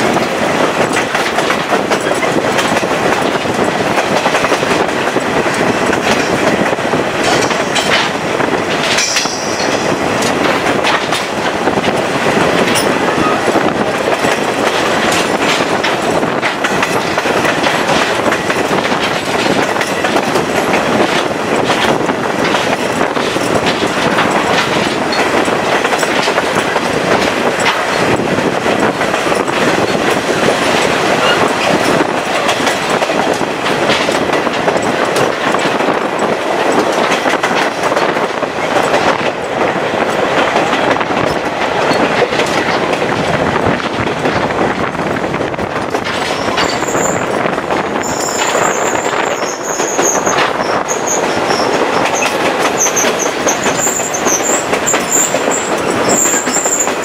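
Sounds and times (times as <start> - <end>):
train rumbling on rails: 0.0 - 57.0
high wheel squeal: 31.2 - 31.8, 46.4 - 47.2, 48.0 - 56.9.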